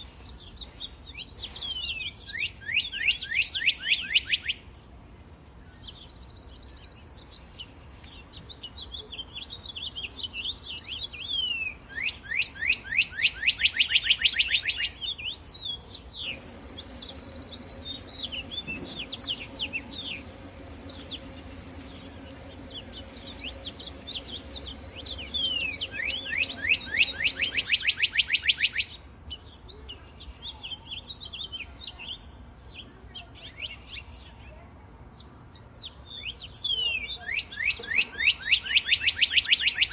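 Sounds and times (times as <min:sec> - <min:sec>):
birds chirping and singing: 0:16.2 - 0:27.9
fast repeated bird trill: 0:16.2 - 0:28.5
steady high-pitched hiss: 0:16.2 - 0:28.5.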